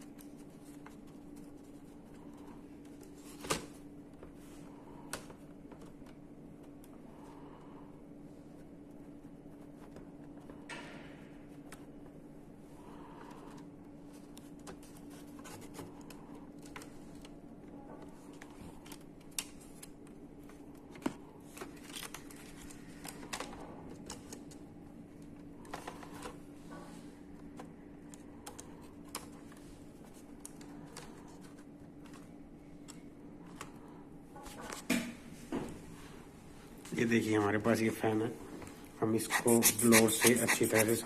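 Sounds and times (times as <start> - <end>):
steady low hum: 0.0 - 41.0
tools clicking and scraping on laptop: 39.2 - 41.0.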